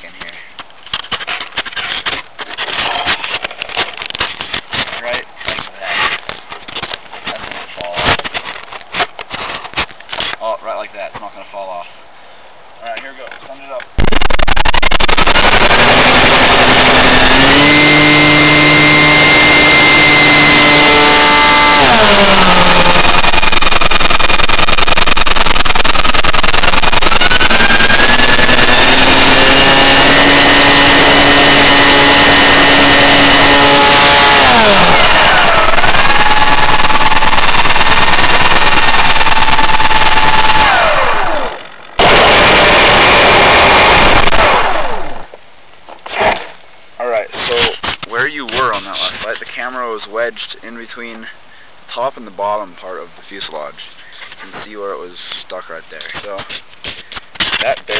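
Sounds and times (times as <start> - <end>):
electric motor and propeller whining: 14.0 - 45.3.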